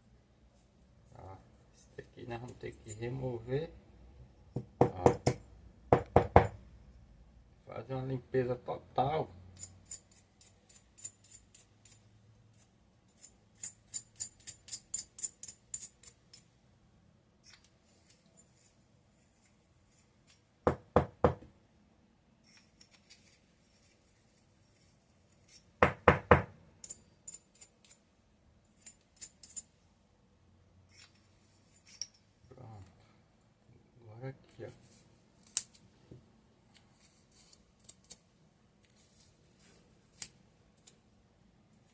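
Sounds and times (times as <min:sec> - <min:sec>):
small metal parts clinking: 0:09.5 - 0:12.0, 0:22.4 - 0:24.0, 0:26.8 - 0:28.1, 0:28.7 - 0:29.8, 0:30.9 - 0:32.4.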